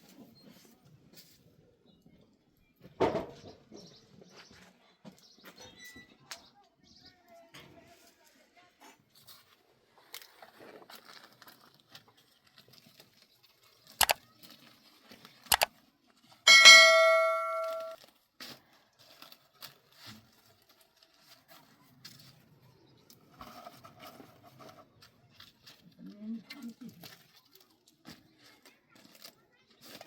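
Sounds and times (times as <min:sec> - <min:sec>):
metal object ringing: 0:16.5 - 0:18.0.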